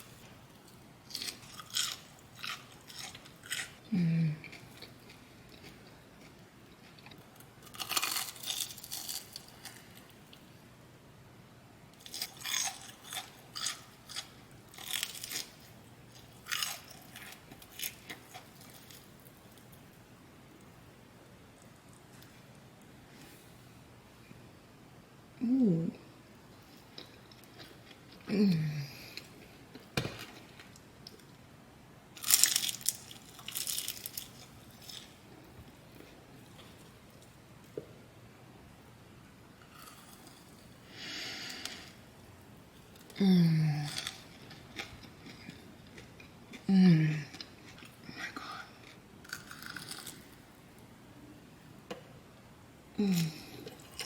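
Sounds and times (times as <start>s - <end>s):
crunching and chewing food: 0.0s - 10.5s, 11.9s - 20.9s, 26.5s - 28.3s, 32.2s - 37.8s, 39.6s - 50.9s, 53.0s - 54.0s.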